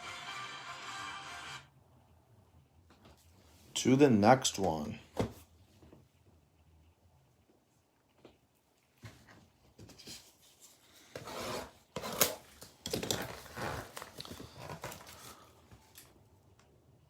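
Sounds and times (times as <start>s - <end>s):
cardboard box tearing and crinkling: 11.4s - 15.4s
wrapping crackle: 12.1s - 16.1s.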